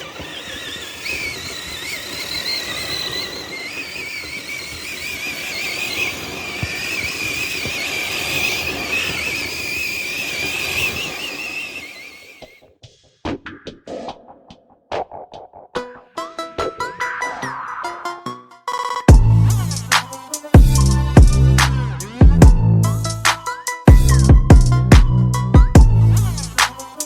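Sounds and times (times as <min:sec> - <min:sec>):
electric motor whining: 0:00.0 - 0:12.6, 0:19.1 - 0:23.4, 0:25.8 - 0:27.0.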